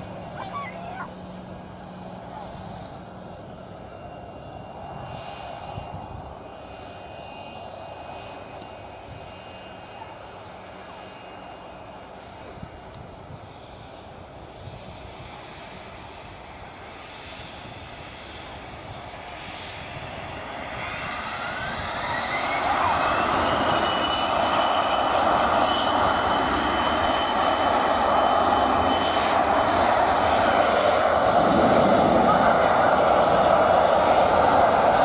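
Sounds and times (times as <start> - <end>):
jet engines spooling up: 19.2 - 35.0.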